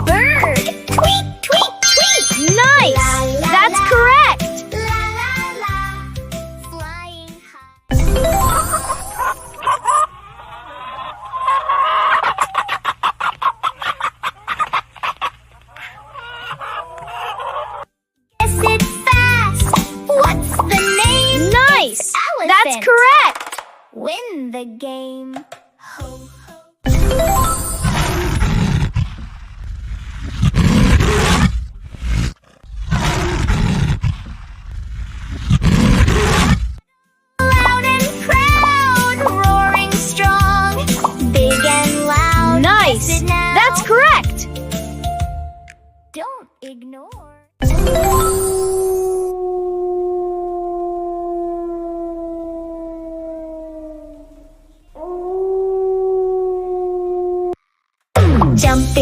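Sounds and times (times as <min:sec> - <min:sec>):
big cat roaring: 0:28.2 - 0:36.7.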